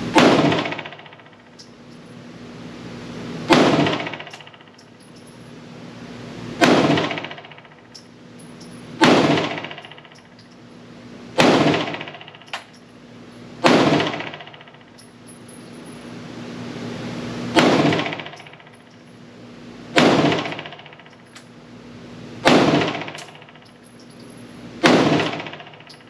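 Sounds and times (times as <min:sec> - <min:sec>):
pistol shots ringing indoors: 0:00.0 - 0:01.7, 0:03.4 - 0:04.9, 0:06.6 - 0:08.1, 0:09.0 - 0:10.4, 0:11.3 - 0:12.8, 0:13.6 - 0:15.1, 0:17.5 - 0:18.8, 0:19.9 - 0:21.2, 0:22.4 - 0:23.8, 0:24.7 - 0:26.0.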